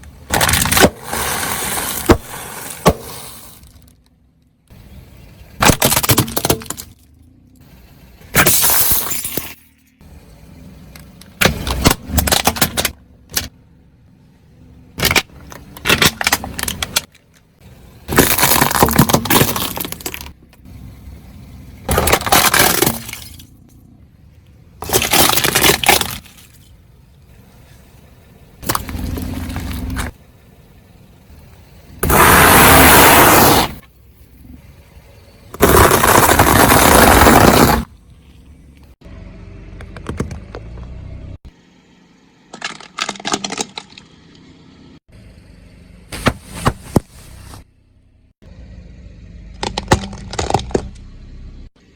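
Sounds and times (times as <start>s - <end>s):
plastic toy crunching under tyre: 0.2s - 4.0s, 5.6s - 7.1s, 11.4s - 13.5s, 15.0s - 17.4s, 18.1s - 20.4s, 21.9s - 23.5s, 24.8s - 26.7s, 28.6s - 30.2s, 32.0s - 33.9s, 35.5s - 37.9s, 42.5s - 44.1s, 49.5s - 51.1s.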